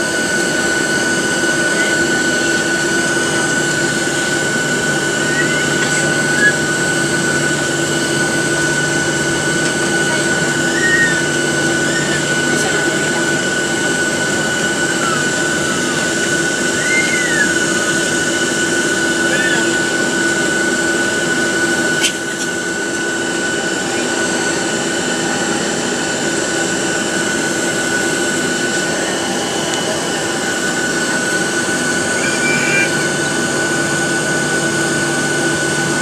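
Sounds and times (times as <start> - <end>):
air conditioning rush: 0.0 - 36.0
jet engine whine: 0.0 - 36.0
steady high tone: 1.6 - 20.0, 27.5 - 34.4.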